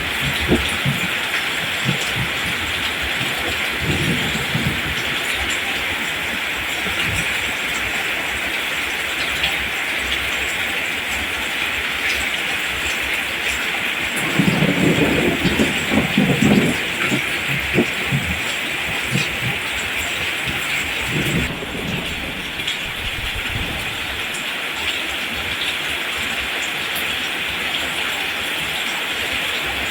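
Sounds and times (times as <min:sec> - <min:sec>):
steady rain hiss: 0:00.0 - 0:29.9
low irregular rumbling: 0:14.1 - 0:24.4.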